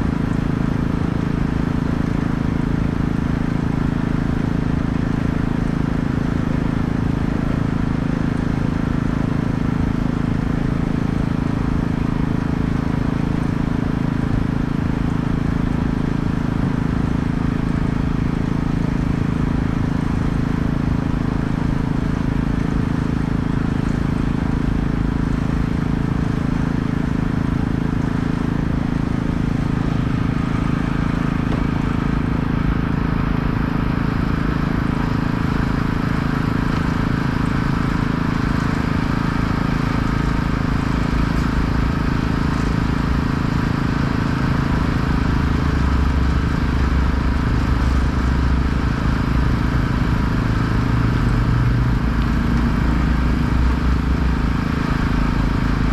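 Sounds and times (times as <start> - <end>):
engine droning steadily: 0.0 - 55.9.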